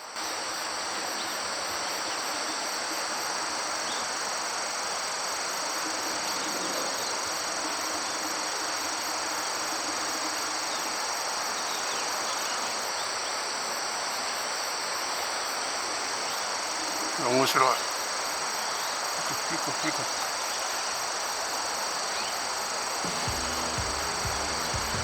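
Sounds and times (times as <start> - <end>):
crickets trilling: 0.0 - 25.0
fast pulsing insect chirp: 0.0 - 25.0
steady rushing background noise: 22.7 - 25.0.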